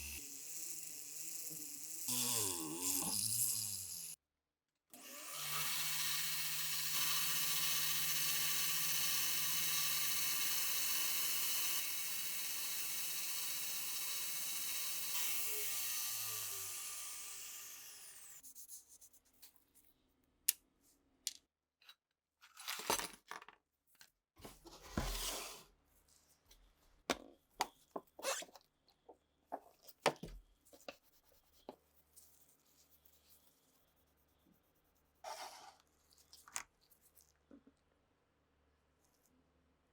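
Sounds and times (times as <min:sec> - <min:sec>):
power tool motor running: 0:00.0 - 0:04.2, 0:05.0 - 0:18.4.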